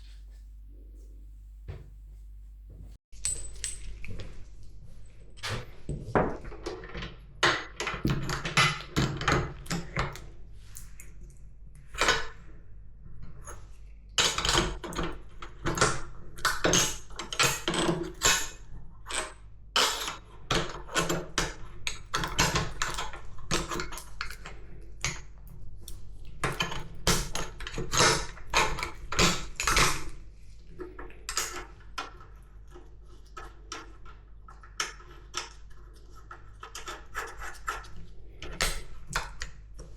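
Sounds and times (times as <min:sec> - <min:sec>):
low steady hum: 0:00.0 - 0:06.0.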